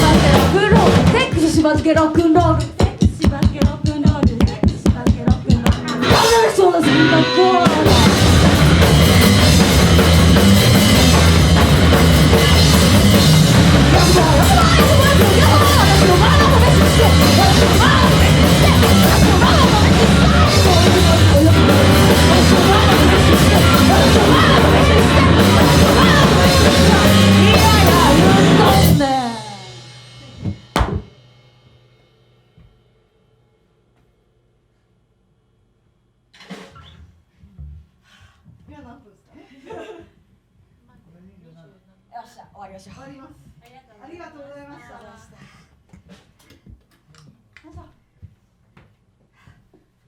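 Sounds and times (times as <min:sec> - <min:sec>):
punk rock band playing live: 0:00.0 - 0:01.5, 0:04.2 - 0:31.1.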